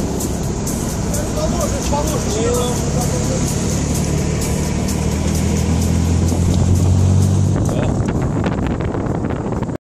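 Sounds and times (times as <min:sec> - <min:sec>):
wind buffeting microphone: 0:05.4 - 0:09.8.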